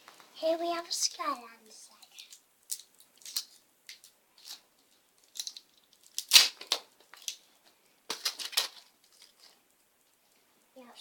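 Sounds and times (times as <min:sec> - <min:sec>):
wrapper rustling: 0:01.9 - 0:09.7
loud crack: 0:05.4 - 0:06.9.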